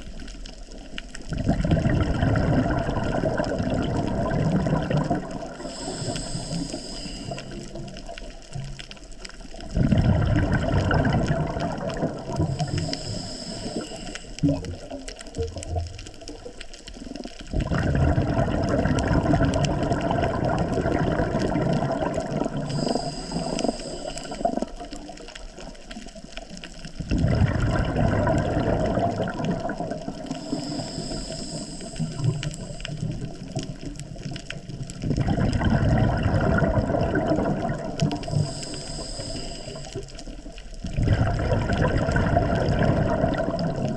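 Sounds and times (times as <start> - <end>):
gush of exhaled bubbles: 0.0 - 43.9
regulator hiss: 5.5 - 7.8, 12.4 - 14.5, 22.6 - 24.8, 30.3 - 33.4, 38.0 - 40.4.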